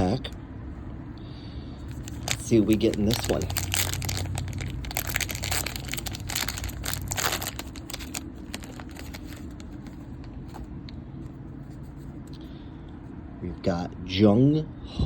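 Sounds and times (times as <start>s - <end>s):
plastic wrapper crinkling and tearing: 1.9s - 10.6s.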